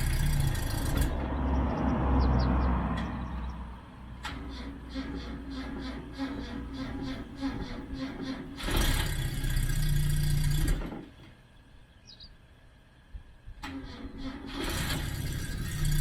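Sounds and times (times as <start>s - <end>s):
car engine running unevenly: 0.0s - 1.3s.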